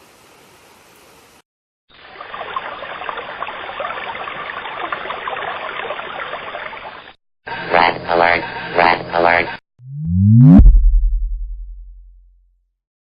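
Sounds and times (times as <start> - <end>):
faint steady hiss: 0.0 - 1.4
running water rushing: 1.9 - 7.1.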